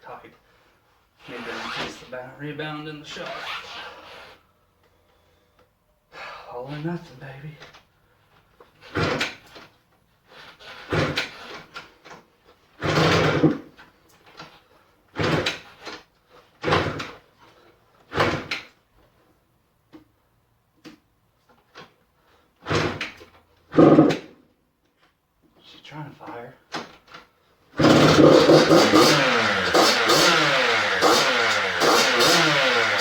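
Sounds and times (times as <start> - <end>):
motorcycle engine kick-started: 27.8 - 33.0.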